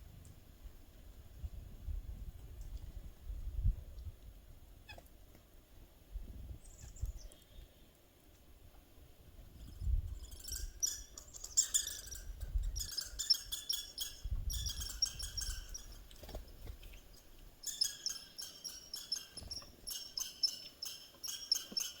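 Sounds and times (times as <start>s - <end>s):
small birds chirping: 6.6s - 8.0s, 9.6s - 22.0s.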